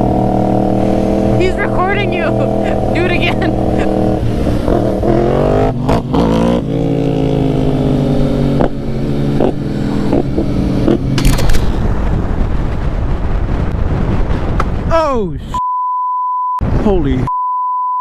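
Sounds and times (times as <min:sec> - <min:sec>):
wind and road noise: 0:00.0 - 0:15.6
exhaust pops and cracks: 0:11.2 - 0:12.3.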